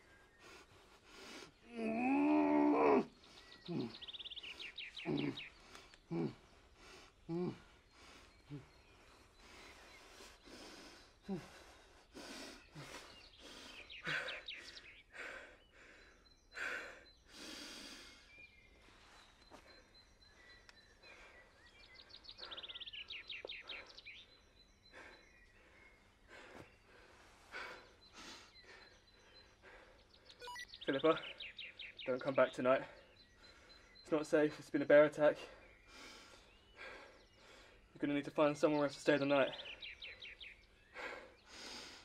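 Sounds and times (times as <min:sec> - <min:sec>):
man breathing hard: 0:00.0 - 0:01.8, 0:03.1 - 0:30.4, 0:35.4 - 0:37.9, 0:39.6 - 0:42.0
bird calling with rapid trill: 0:02.5 - 0:11.9, 0:27.7 - 0:41.9.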